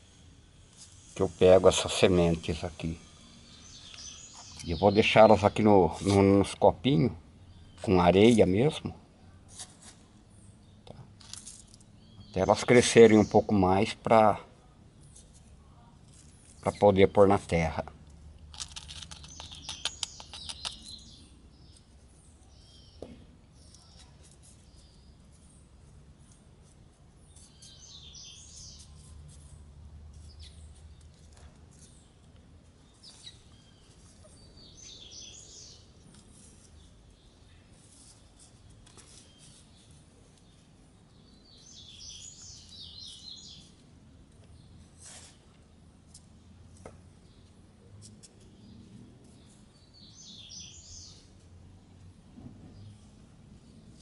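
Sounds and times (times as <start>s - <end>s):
birds chirping: 1.2s - 8.9s, 10.4s - 14.3s, 18.7s - 24.1s, 27.2s - 29.1s, 32.8s - 43.8s, 48.5s - 51.4s.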